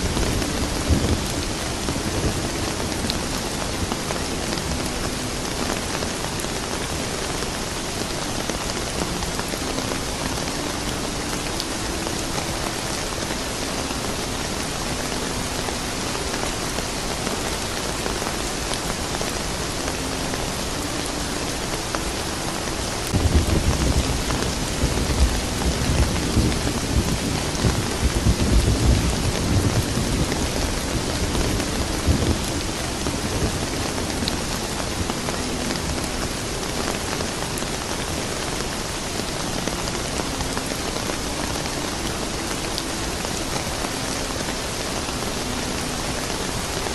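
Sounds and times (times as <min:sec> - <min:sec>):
steady rain falling: 0:00.0 - 0:46.9
low thunder rumble: 0:23.1 - 0:35.2.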